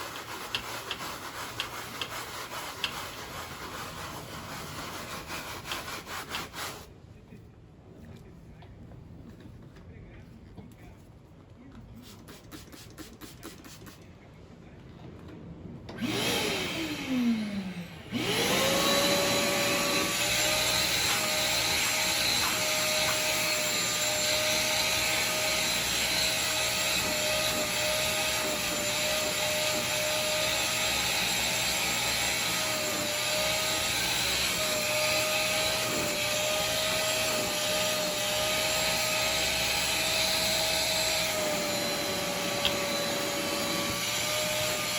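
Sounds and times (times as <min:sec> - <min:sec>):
vacuum cleaner motor whine: 0:16.0 - 0:44.9.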